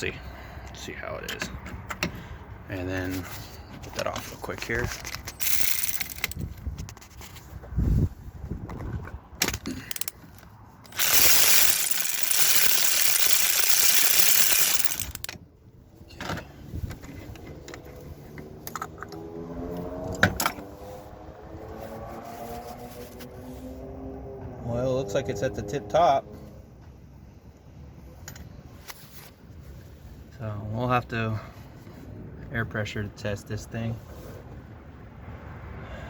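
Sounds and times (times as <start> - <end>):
ratchet clicks: 5.0 - 6.4, 9.8 - 10.2, 10.9 - 15.4
metal clinks: 5.2 - 6.4, 9.8 - 10.2, 10.9 - 15.3.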